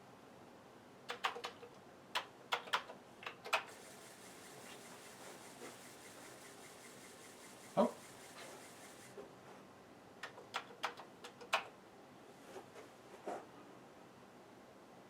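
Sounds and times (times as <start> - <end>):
keyboard keys clicking: 1.1 - 3.7, 10.2 - 11.7
disk drive whirring: 3.5 - 9.3.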